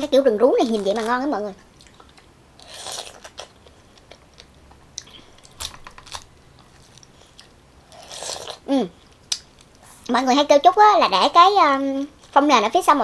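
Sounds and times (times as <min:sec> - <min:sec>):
chewing juicy fruit: 0:00.6 - 0:10.1.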